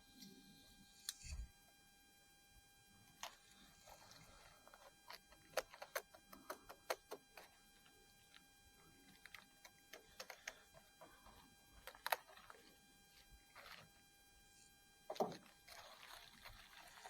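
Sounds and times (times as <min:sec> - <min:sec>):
parts clicking and tapping: 0:04.1 - 0:12.7.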